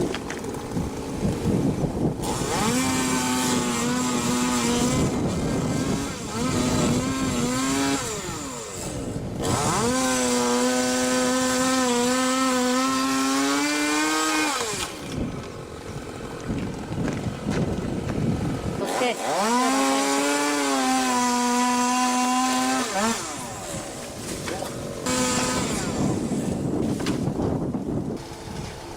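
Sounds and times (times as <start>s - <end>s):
chainsaw engine revving: 2.1s - 15.2s, 18.6s - 27.1s.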